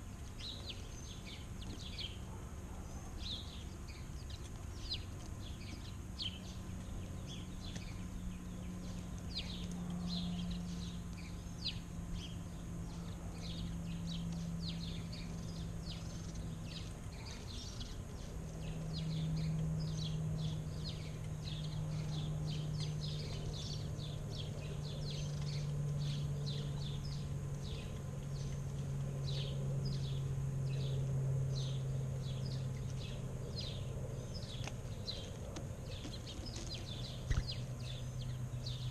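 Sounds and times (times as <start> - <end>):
birds chirping: 0.0 - 38.9
low steady drone: 0.0 - 38.9.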